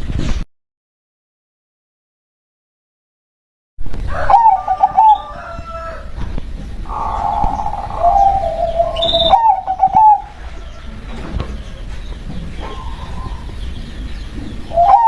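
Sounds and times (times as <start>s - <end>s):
dove cooing: 4.2s - 6.0s, 6.8s - 11.1s, 12.6s - 13.6s, 14.6s - 15.0s
birds chirping faintly: 4.2s - 15.0s.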